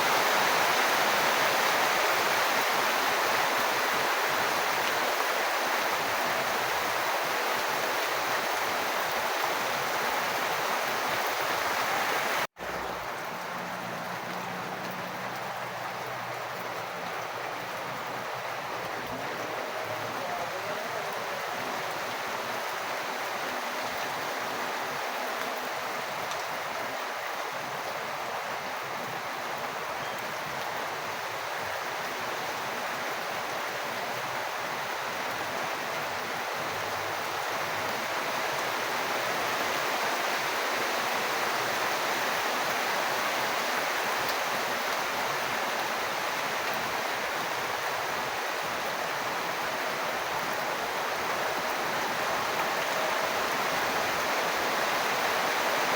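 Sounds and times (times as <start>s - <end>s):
rainwater rushing: 0.0s - 55.9s.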